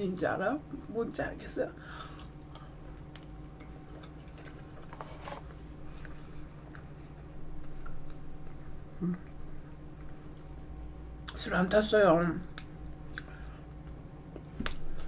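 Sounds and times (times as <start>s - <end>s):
low electrical hum: 0.0s - 15.0s
soft wet chewing clicks: 2.1s - 5.0s, 5.9s - 11.5s, 12.5s - 14.8s.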